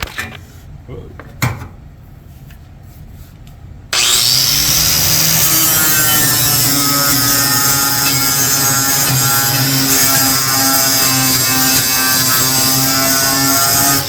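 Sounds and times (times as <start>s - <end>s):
angle grinder grinding metal: 3.9s - 14.0s.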